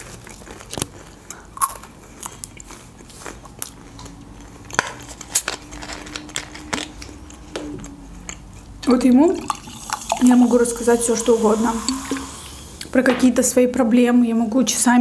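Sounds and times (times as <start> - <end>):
chewing crispy fries: 0.0 - 8.8.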